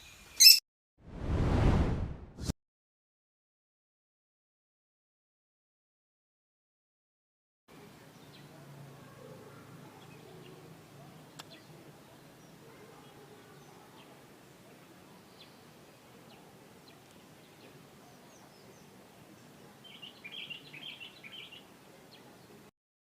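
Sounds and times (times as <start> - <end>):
bird chirps and chattering: 0.4 - 0.6.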